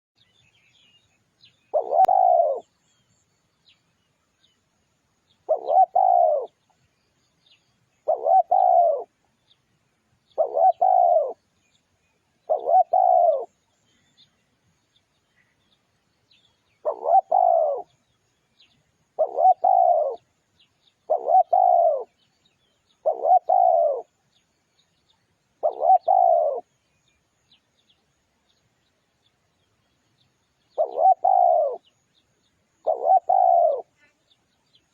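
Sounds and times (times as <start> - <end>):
dove cooing: 1.7 - 2.7, 5.4 - 6.6, 8.0 - 9.2, 10.4 - 11.4, 12.4 - 13.6, 16.8 - 18.0, 19.2 - 20.3, 21.0 - 22.2, 23.0 - 24.1, 25.6 - 26.7, 30.7 - 31.9, 32.8 - 34.0.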